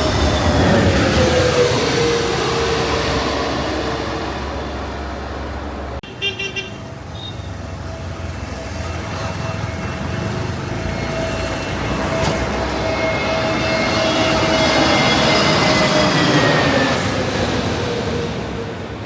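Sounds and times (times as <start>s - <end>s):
steady engine whine: 0.0s - 6.0s, 6.7s - 19.0s
engine and traffic rumble: 0.0s - 19.0s
vehicle horn toot: 6.0s - 7.5s.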